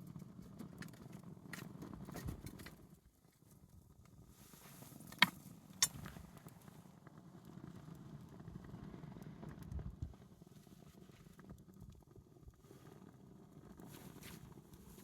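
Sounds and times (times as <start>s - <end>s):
campfire crackling: 0.1s - 15.0s
campfire pop: 5.1s - 6.3s.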